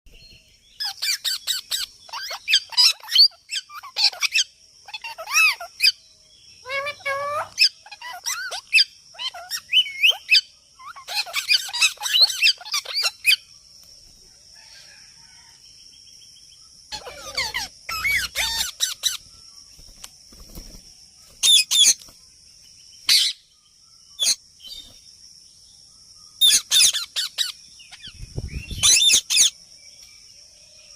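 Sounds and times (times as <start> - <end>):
faint high-pitched hiss: 0.1 - 30.9
parrot chirping and squawking: 0.8 - 6.0, 6.6 - 13.4, 16.9 - 19.2, 21.4 - 22.0, 23.1 - 23.4, 26.4 - 28.1, 28.8 - 29.6.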